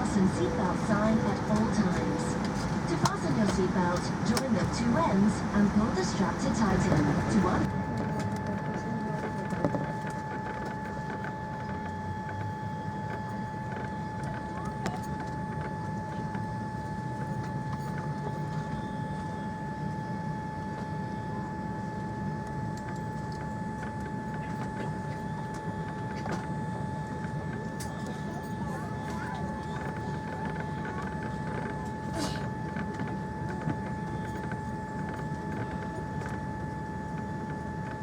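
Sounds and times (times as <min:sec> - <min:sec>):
high whine: 0:00.0 - 0:07.8
aircraft cabin hum and air rush: 0:00.0 - 0:38.0.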